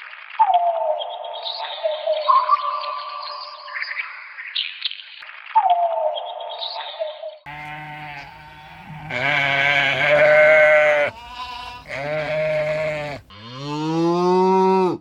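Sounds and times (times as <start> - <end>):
animal bleating: 7.5 - 15.0
cow mooing: 7.5 - 15.0.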